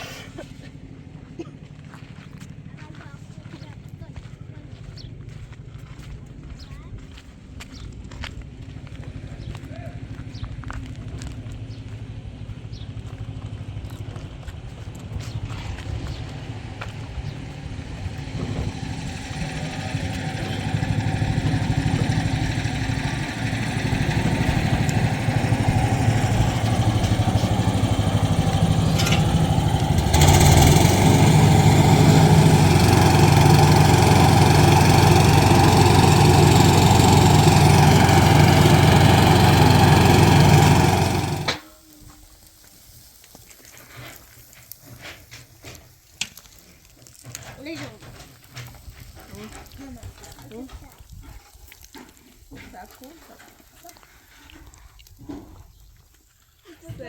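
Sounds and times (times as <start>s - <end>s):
engine running: 0.0s - 41.8s.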